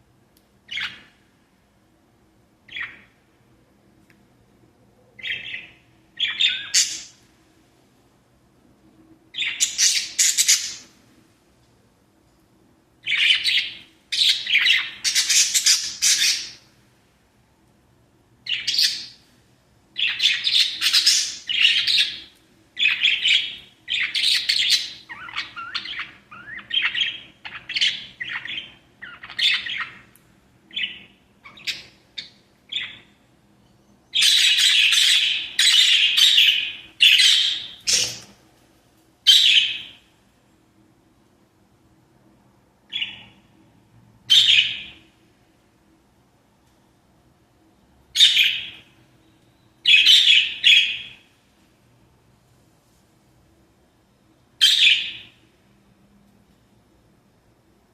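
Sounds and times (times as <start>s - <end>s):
parrots chirping and chattering: 0.7s - 1.1s, 2.7s - 3.1s, 5.2s - 7.2s, 9.4s - 10.9s, 13.0s - 16.7s, 18.4s - 19.2s, 20.0s - 33.1s, 34.1s - 38.3s, 39.2s - 40.1s, 42.9s - 43.4s, 44.3s - 45.0s, 48.2s - 49.0s, 49.8s - 51.3s, 54.6s - 55.4s.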